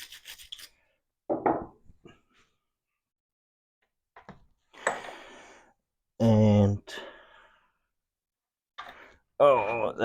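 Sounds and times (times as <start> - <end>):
knock: 1.3 - 1.7.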